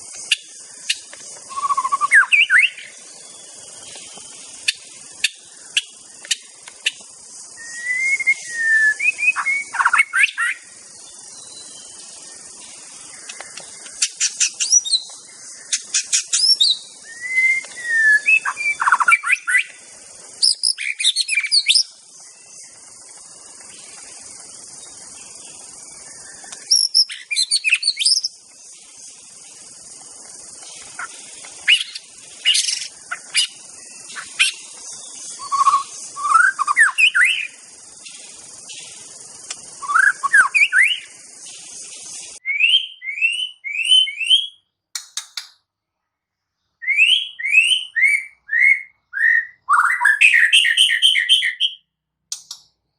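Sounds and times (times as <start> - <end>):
steady high hiss: 0.0 - 46.7, 52.1 - 52.9
bird singing whistled phrases: 1.5 - 3.0, 7.6 - 10.6, 14.0 - 15.1, 15.7 - 19.8, 20.4 - 22.0, 26.2 - 28.3, 35.2 - 37.6, 39.8 - 41.2, 42.4 - 44.7, 46.8 - 52.0.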